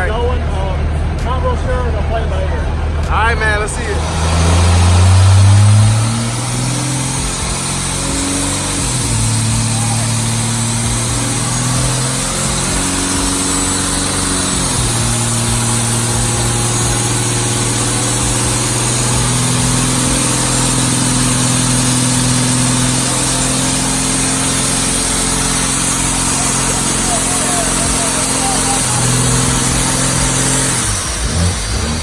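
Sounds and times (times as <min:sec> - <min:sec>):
spinning tyres hissing: 0:00.0 - 0:32.0
truck engine revving high: 0:00.0 - 0:32.0.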